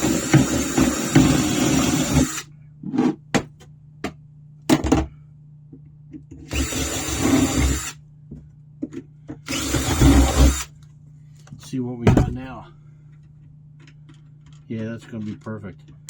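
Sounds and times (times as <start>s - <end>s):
power drill running: 0.0s - 2.5s, 6.5s - 8.0s, 9.5s - 10.7s.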